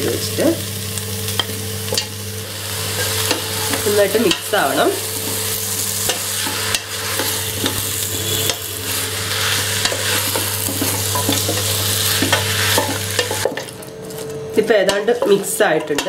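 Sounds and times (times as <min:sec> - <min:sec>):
food sizzling in oil: 0:00.0 - 0:16.0
steady low hum: 0:00.0 - 0:16.0.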